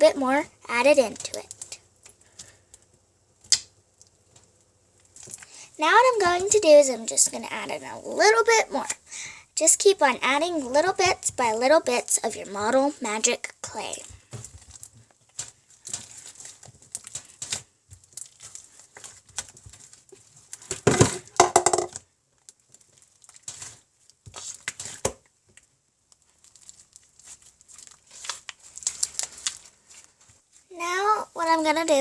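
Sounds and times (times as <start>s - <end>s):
hands squishing slime: 13.7s - 20.8s, 22.4s - 30.6s.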